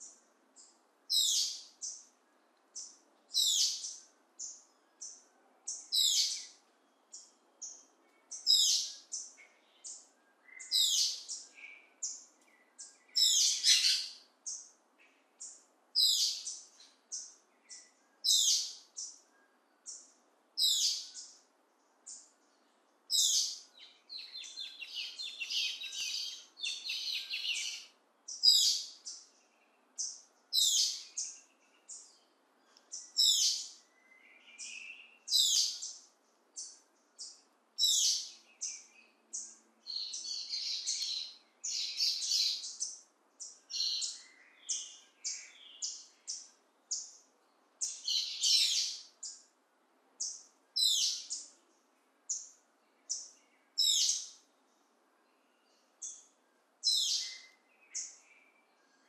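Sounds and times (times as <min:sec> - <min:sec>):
birds chattering: 0:02.8 - 0:21.4, 0:23.1 - 0:47.2.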